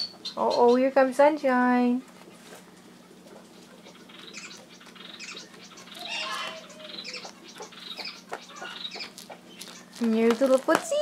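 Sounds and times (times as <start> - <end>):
birds chirping: 0.0 - 11.0
wings fluttering: 2.1 - 11.0.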